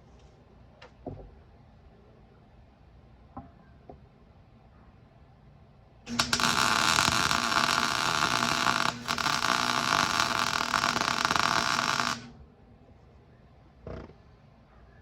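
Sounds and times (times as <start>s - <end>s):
welding arc crackling: 6.1s - 12.4s.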